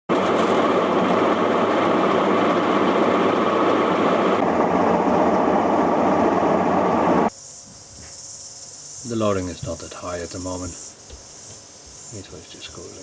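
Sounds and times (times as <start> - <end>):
washing machine running: 0.1 - 7.3.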